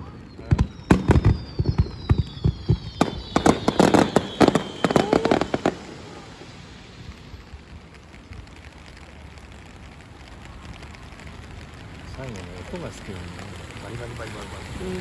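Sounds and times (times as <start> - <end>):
faint falling whistle: 0.0 - 8.1
fireworks bangs and crackling: 0.0 - 15.0
rain hissing: 0.0 - 15.0.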